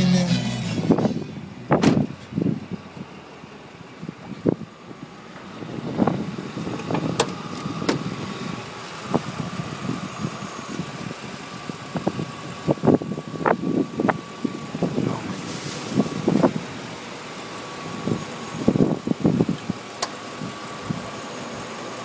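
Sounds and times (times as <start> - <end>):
steady high whine: 0.0 - 19.2
vehicle engine idling: 0.0 - 22.0.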